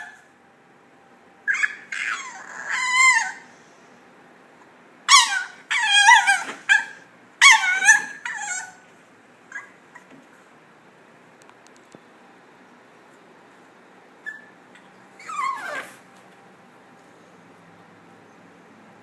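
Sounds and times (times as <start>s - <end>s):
dog whining and yelping: 0.0s - 0.3s, 1.4s - 3.6s, 5.1s - 8.9s, 9.5s - 10.2s, 14.2s - 16.1s.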